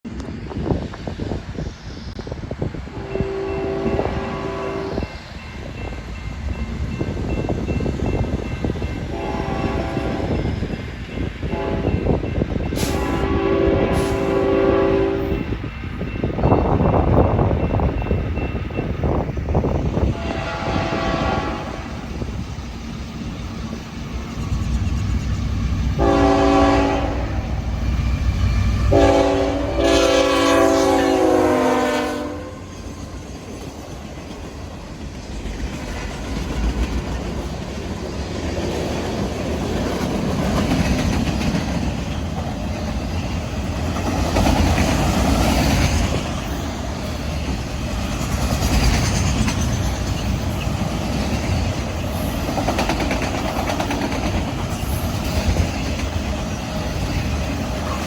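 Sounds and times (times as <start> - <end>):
train rumbling on rails: 0.0 - 58.0
train horn blasts: 2.9 - 5.2, 9.1 - 10.4, 11.4 - 12.2, 12.8 - 15.5, 20.0 - 22.1, 25.8 - 32.8.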